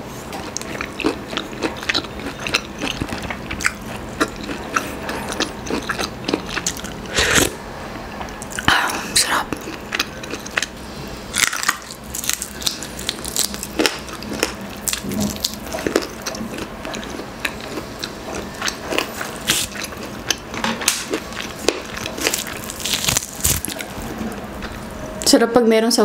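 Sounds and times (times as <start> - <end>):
person chewing with wet smacks: 0.3 - 7.5, 9.4 - 10.8, 11.4 - 23.9
crunch of charred skin: 11.4 - 16.0, 19.4 - 19.9, 20.8 - 24.0.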